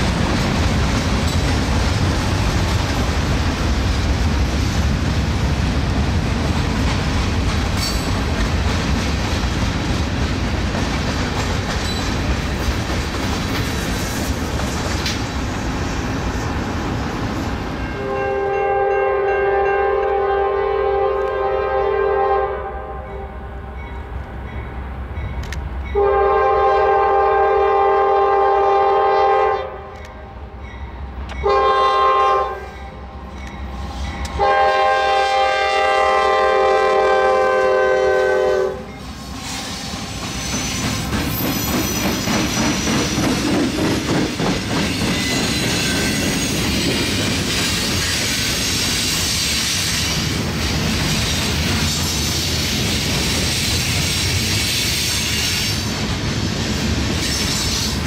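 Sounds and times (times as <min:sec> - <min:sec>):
train rumble and wheel clatter: 0:00.0 - 0:58.0
locomotive air horn blasts: 0:17.9 - 0:23.2, 0:26.0 - 0:29.9, 0:31.4 - 0:32.8, 0:34.3 - 0:38.9.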